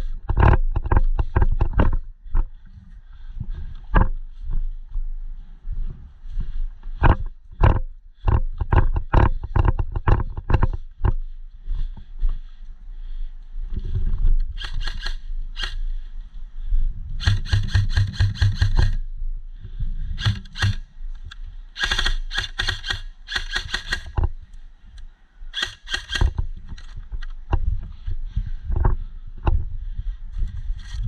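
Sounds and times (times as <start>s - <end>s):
handling rumble: 0.0s - 14.6s
airsoft gun firing bursts: 14.6s - 15.8s, 17.2s - 19.0s, 20.2s - 20.9s, 21.8s - 24.2s, 25.5s - 26.4s.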